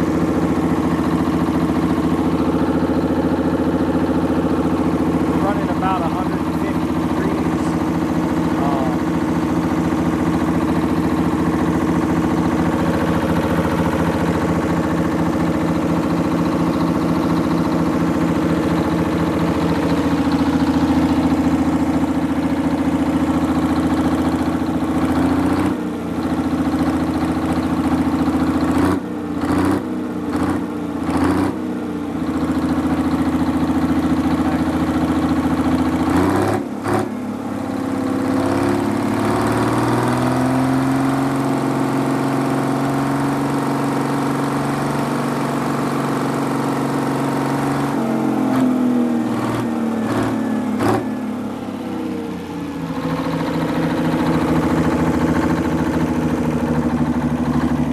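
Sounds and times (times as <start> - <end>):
diesel engine running steadily: 0.0 - 57.9.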